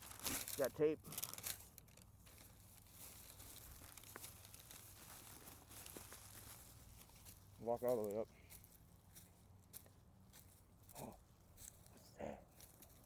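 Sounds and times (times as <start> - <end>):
plastic crinkling and rustling: 0.0 - 8.2.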